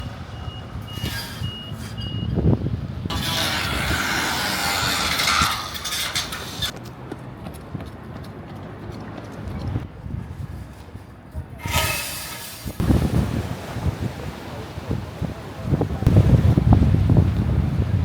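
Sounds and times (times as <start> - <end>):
low traffic rumble: 0.0 - 18.0
loud hiss of air: 11.8 - 13.3.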